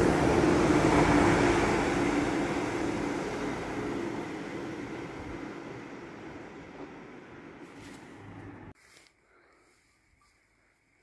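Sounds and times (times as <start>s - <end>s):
train wheel rumble: 0.0s - 8.7s
train engine hum: 0.0s - 8.8s.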